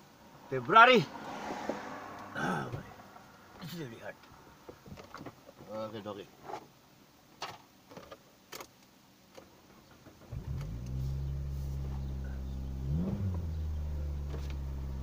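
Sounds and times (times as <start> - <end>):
car engine starting and idling: 10.2 - 15.0.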